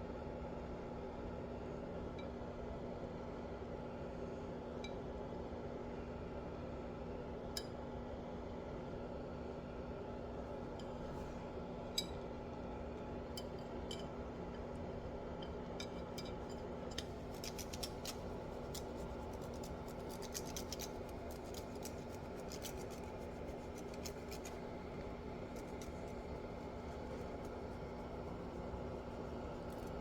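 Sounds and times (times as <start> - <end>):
steady low hum: 0.0 - 30.0
small clicks and scrapes: 15.8 - 30.0.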